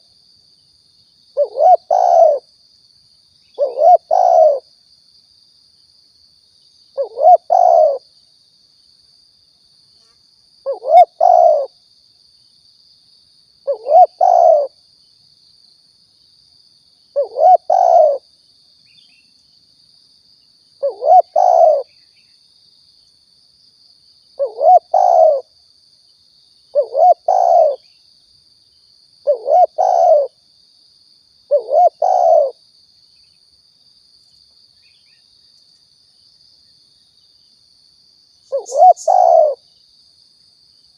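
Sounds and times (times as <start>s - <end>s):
dove cooing: 1.4s - 2.5s, 3.6s - 4.7s, 7.0s - 8.0s, 10.7s - 11.7s, 13.7s - 14.8s, 17.2s - 18.2s, 20.8s - 21.9s, 24.4s - 25.5s, 26.7s - 27.8s, 29.2s - 30.4s, 31.5s - 32.6s, 38.5s - 39.6s.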